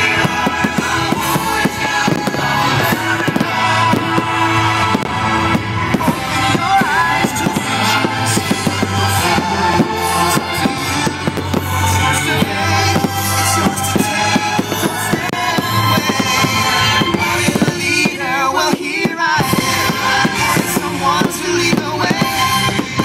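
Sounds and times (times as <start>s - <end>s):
loud music with singing: 0.0s - 23.0s.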